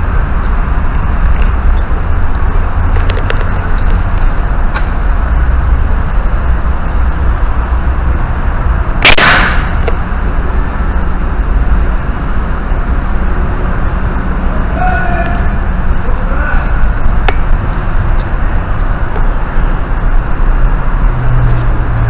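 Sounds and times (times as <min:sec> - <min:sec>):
sharp hissing crack: 0:09.0 - 0:09.9.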